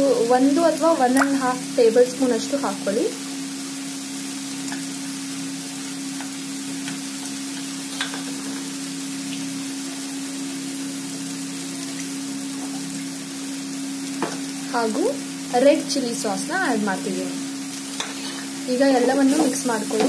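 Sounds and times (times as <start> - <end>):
low steady hum: 0.0 - 8.6
food sizzling in a pan: 0.0 - 20.0.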